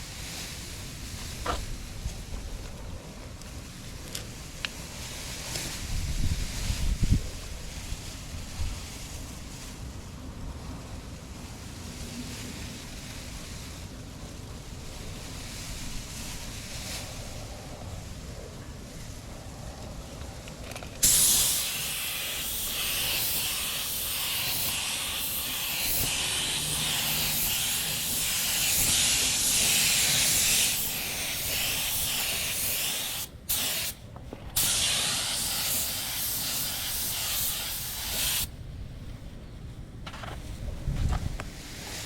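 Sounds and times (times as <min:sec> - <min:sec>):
paint spray gun hissing: 0:21.0 - 0:34.0, 0:34.6 - 0:38.5.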